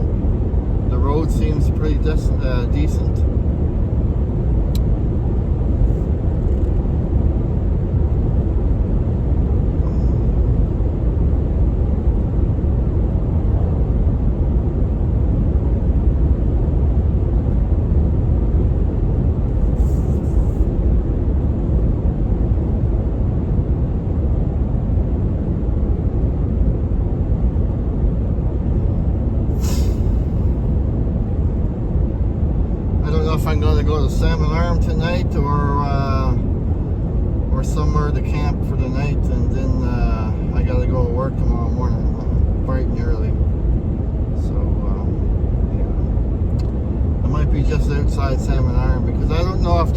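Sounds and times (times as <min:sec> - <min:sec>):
truck engine and tyres rumbling: 0:00.0 - 0:49.9
brief high hissing: 0:29.6 - 0:30.3.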